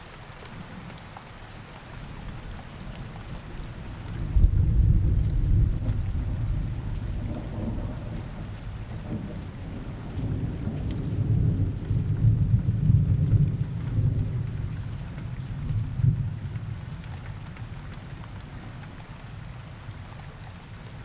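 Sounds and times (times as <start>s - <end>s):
steady rain: 0.0s - 21.0s
low rolling thunder: 3.5s - 18.8s.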